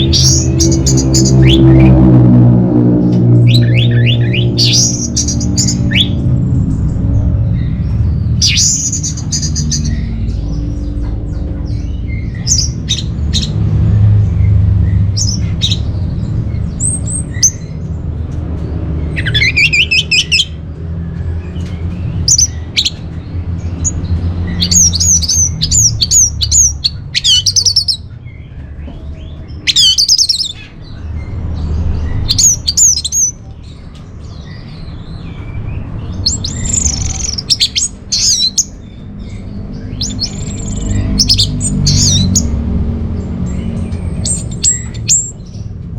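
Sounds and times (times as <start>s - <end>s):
steady low rumble: 0.0s - 29.7s.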